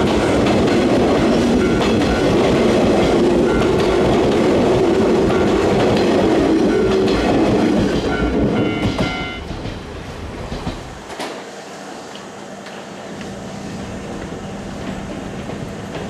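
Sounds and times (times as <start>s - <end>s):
train wheel knocks: 0.0s - 11.4s
electric train rumbling past: 0.0s - 16.0s.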